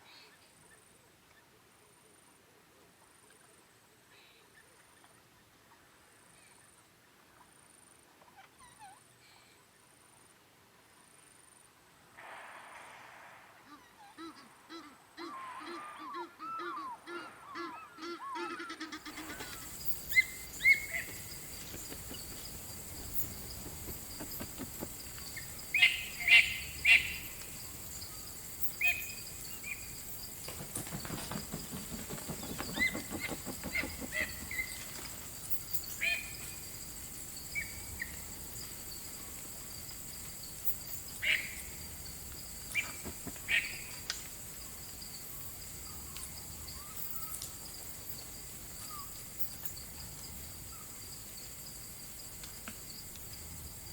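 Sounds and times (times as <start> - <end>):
insects trilling: 18.9 - 53.9
bird chirps: 19.0 - 30.1.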